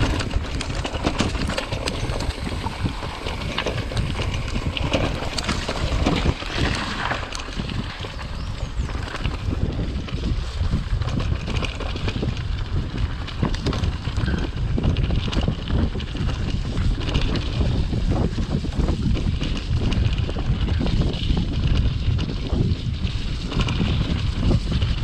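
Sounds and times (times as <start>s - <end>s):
bike knocks and rattles: 0.0s - 25.0s
wind buffeting microphone: 0.0s - 25.0s.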